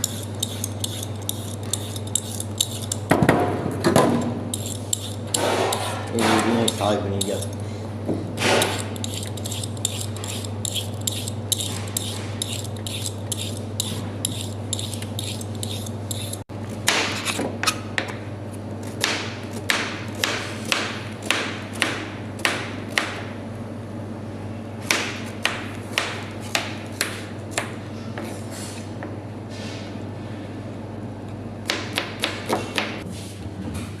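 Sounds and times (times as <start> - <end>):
steady low hum: 0.0 - 34.0
knife chopping on cutting board: 2.6 - 7.4, 24.8 - 27.8.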